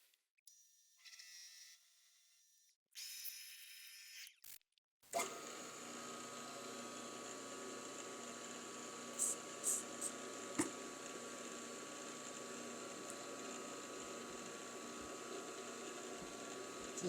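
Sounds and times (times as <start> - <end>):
milling machine humming: 5.2 - 17.0.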